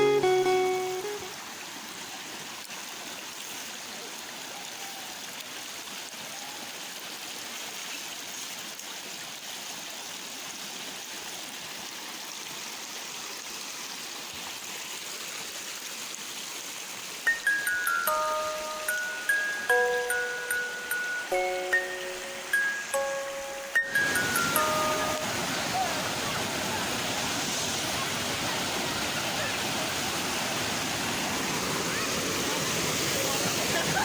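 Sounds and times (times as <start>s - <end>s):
waterfall rushing: 0.0s - 2.3s, 17.2s - 34.0s.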